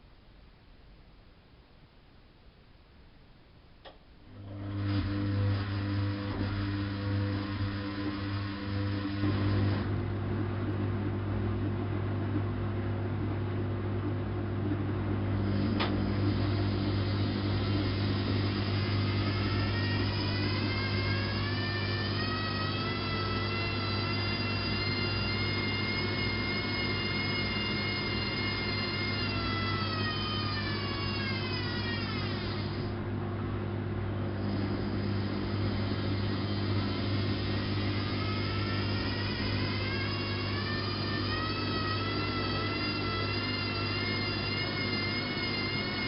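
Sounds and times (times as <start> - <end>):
click: 3.8 - 4.0, 15.8 - 16.0
drum motor whine: 3.8 - 46.0
washing machine humming: 3.8 - 46.0.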